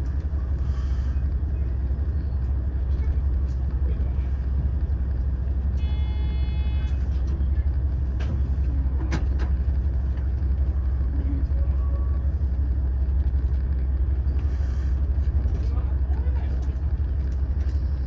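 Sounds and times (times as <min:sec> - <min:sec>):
railcar cabin rumble: 0:00.0 - 0:18.0.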